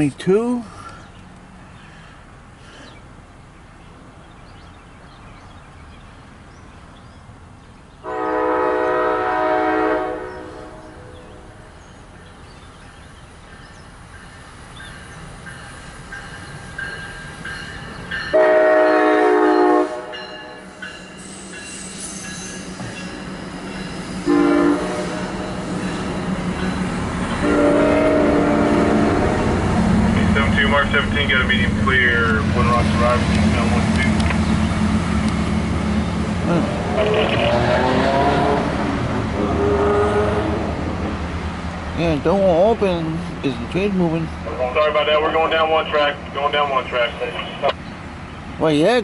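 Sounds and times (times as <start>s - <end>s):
train rumble: 0.0s - 49.0s
train horn blasts: 8.0s - 11.3s, 18.3s - 20.7s, 24.2s - 25.4s, 27.4s - 29.6s, 37.5s - 38.8s, 39.4s - 40.8s.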